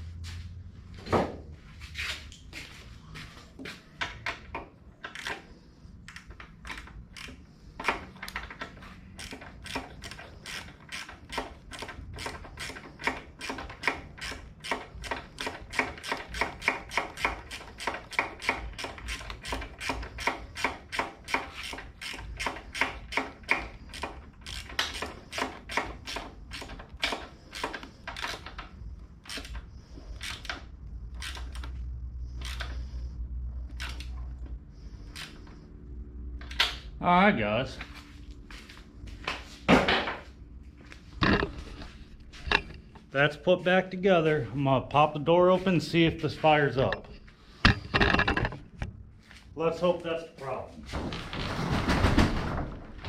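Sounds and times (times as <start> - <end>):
socket ratchet clicking: 6.1 - 31.8.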